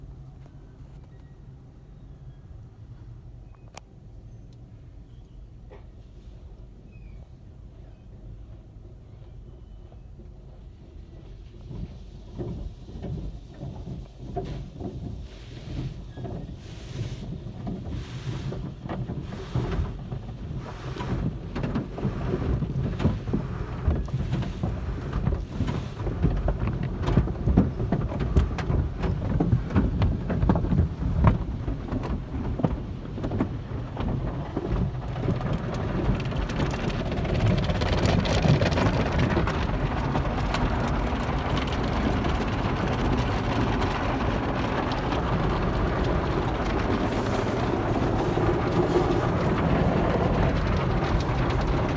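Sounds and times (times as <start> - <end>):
car wash water spray drumming: 10.6 - 51.9.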